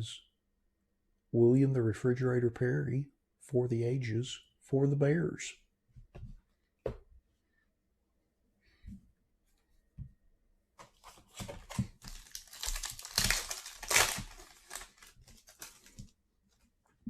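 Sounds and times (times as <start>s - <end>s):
wrapper tearing and crinkling: 11.0s - 16.1s.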